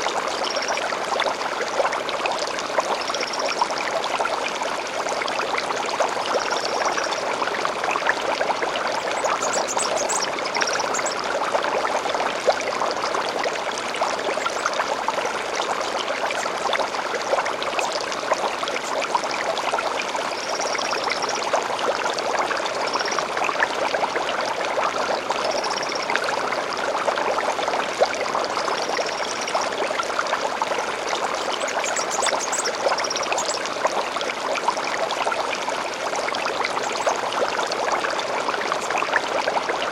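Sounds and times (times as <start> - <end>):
stream babbling: 0.0 - 39.9
bird chirps: 9.1 - 11.2.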